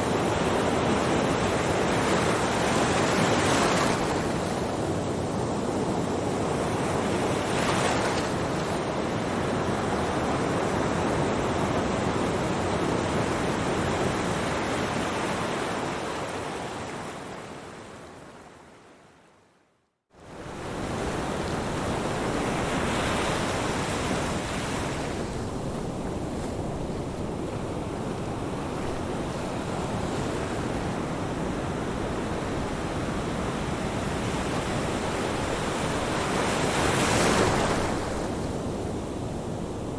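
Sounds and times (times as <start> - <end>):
ocean waves breaking: 20.5 - 38.6.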